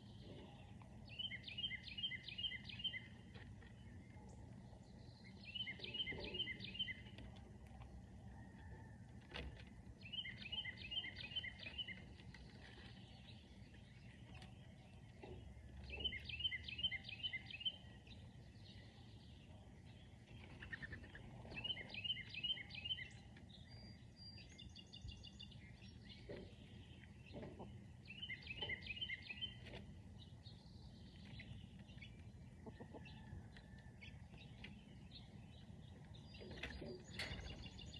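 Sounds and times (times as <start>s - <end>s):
bird singing clear notes: 5.0s - 7.3s, 10.0s - 12.1s, 12.8s - 33.4s.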